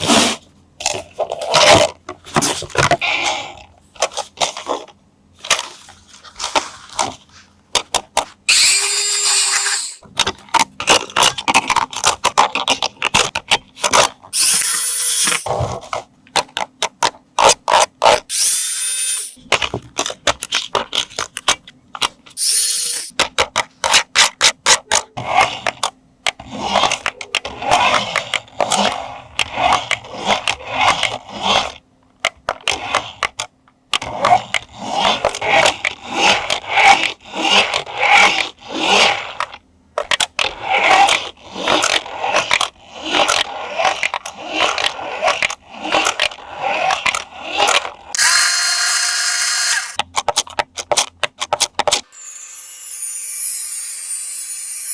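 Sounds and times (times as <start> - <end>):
small electric motor whirring: 8.5 - 10.0, 14.4 - 15.5, 18.3 - 19.4, 22.4 - 23.1, 48.2 - 50.0, 52.1 - 54.9.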